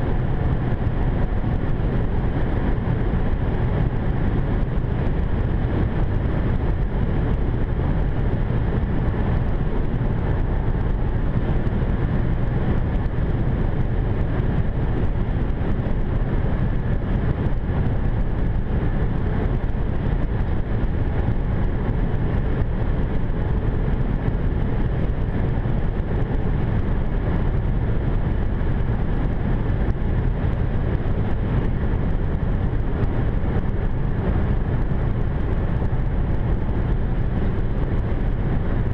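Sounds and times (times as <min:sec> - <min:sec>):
car cabin road rumble: 0:00.0 - 0:38.9.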